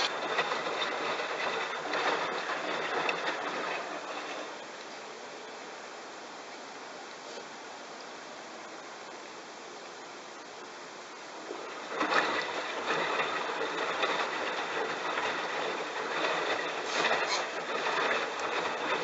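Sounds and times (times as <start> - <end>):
washing machine tumbling wet towels: 0.0 - 5.4, 11.1 - 19.0.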